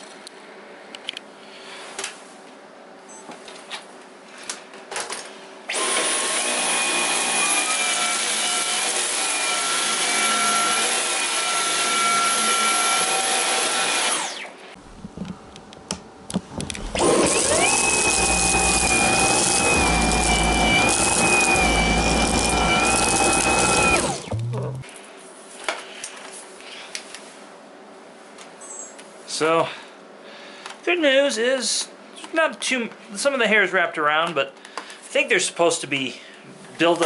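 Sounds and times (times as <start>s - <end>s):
vacuum cleaner motor whine: 5.7s - 9.6s, 16.8s - 24.8s.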